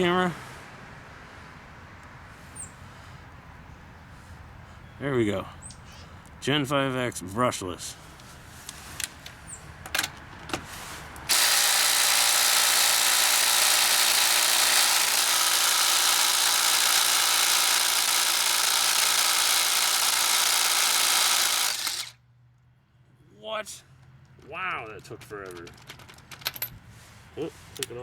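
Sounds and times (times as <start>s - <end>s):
impact driver hammering: 11.3s - 22.1s.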